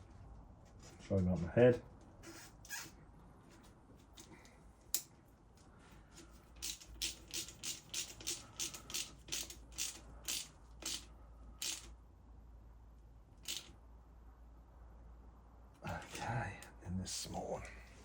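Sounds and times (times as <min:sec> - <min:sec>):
ratchet wrench clicking: 0:06.6 - 0:11.9, 0:13.4 - 0:13.7.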